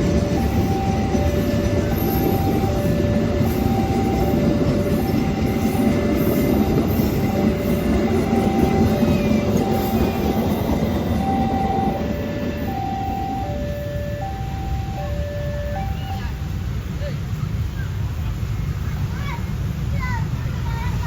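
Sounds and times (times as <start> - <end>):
level-crossing warning alarm: 0.0 - 16.7
train wheels rumbling on rail: 0.0 - 21.0.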